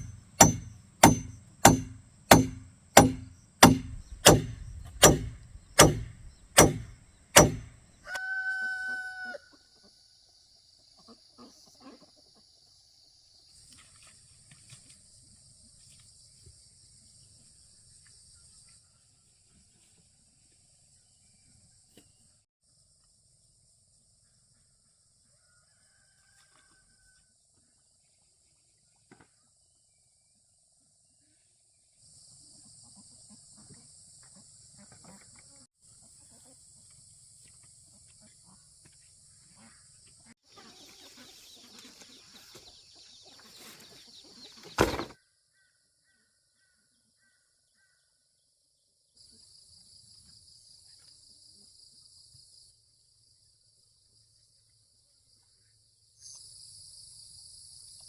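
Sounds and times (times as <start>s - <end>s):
sharp loud knock: 0.0s - 7.8s
chickens clucking: 10.8s - 12.7s, 40.5s - 44.8s.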